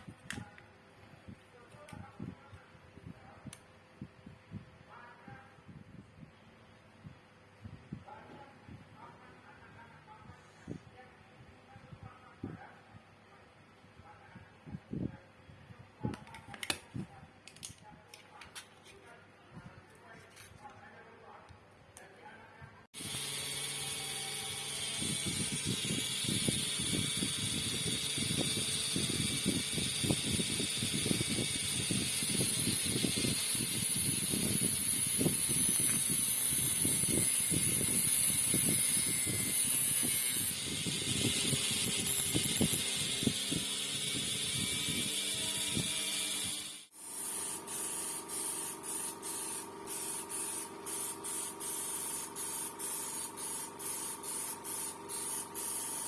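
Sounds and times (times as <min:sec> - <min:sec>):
spray paint hissing: 0:23.0 - 0:56.0.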